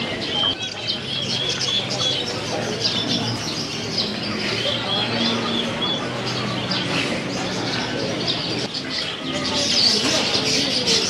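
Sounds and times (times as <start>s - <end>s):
caged birds chirping: 0.0s - 11.0s
murmur of voices: 0.0s - 11.0s.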